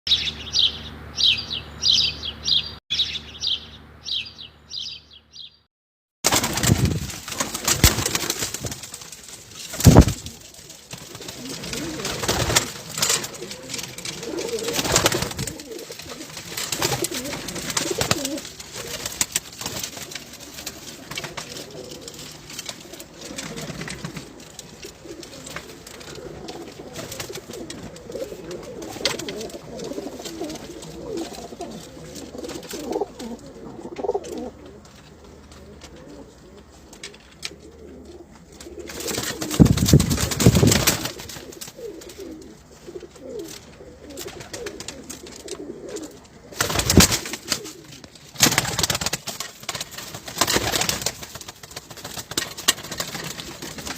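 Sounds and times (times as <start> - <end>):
pigeons cooing: 9.7 - 49.1.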